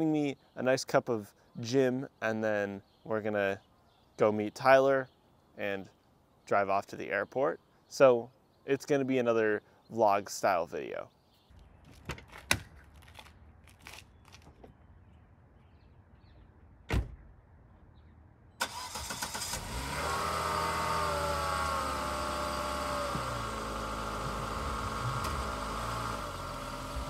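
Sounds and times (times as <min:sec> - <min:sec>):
sharp thump: 0:16.9 - 0:17.3
car engine starting and idling: 0:18.6 - 0:27.0.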